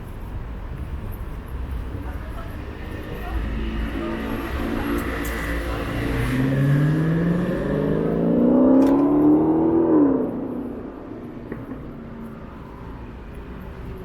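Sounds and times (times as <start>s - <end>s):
low rumble of traffic: 0.0s - 14.0s
car engine accelerating: 2.9s - 12.3s.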